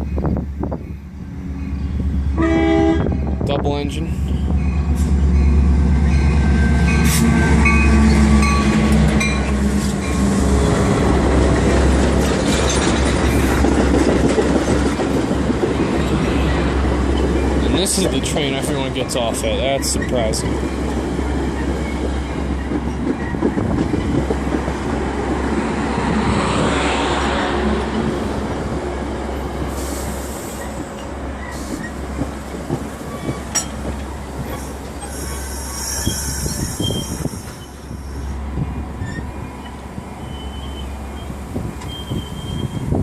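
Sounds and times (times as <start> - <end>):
diesel locomotive engine hum: 0.0 - 43.0
rail cars rumbling: 0.0 - 43.0
wheels clattering over rail joints: 11.3 - 16.3, 30.5 - 35.2
train wheels squealing: 34.5 - 38.3, 39.0 - 42.9.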